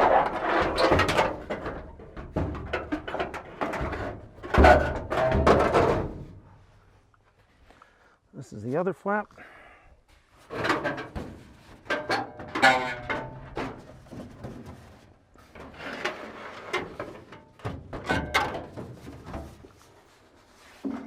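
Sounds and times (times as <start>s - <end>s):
metal flap knocking and clattering: 0.0s - 6.4s, 16.8s - 19.5s.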